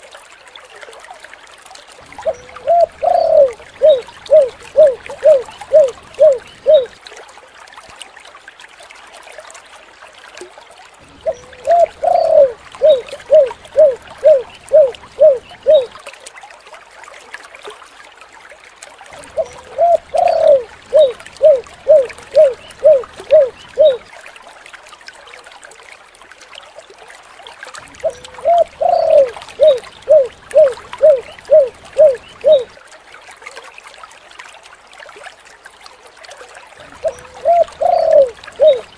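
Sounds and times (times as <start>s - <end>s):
water trickling: 0.0s - 38.9s
dove cooing: 2.2s - 7.0s, 11.2s - 16.0s, 19.2s - 24.0s, 28.0s - 32.8s, 37.0s - 38.9s.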